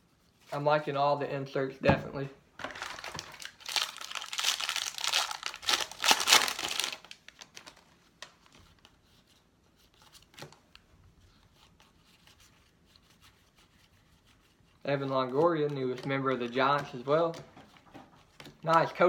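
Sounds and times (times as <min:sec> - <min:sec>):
card pack wrapper tearing and crinkling: 0:02.6 - 0:08.5
cards rustling and ticking: 0:02.6 - 0:13.4, 0:14.6 - 0:19.0.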